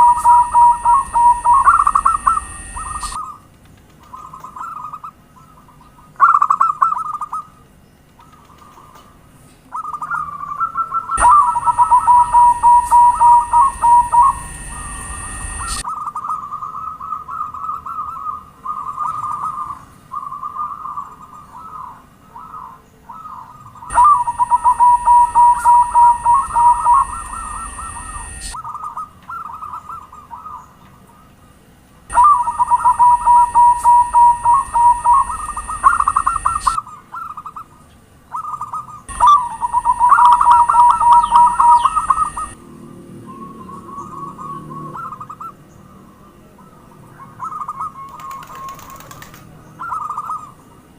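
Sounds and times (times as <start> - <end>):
low hum: 0.0 - 3.2, 11.2 - 15.8, 23.9 - 28.6, 32.1 - 36.8, 39.1 - 45.4
steady high hiss: 0.0 - 3.2, 11.2 - 15.8, 23.9 - 28.6, 32.1 - 36.8, 39.1 - 42.6
doves cooing in trilled notes: 0.0 - 3.4, 9.7 - 30.7, 32.1 - 37.7, 38.3 - 42.6, 43.3 - 50.6.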